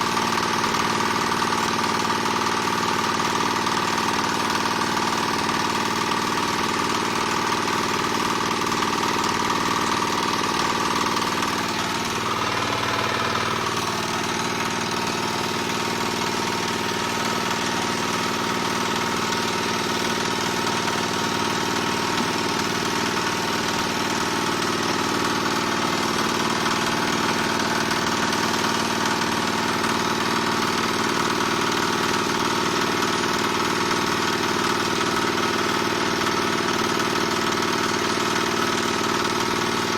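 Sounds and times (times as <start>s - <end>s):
small diesel engine running: 0.0s - 39.9s.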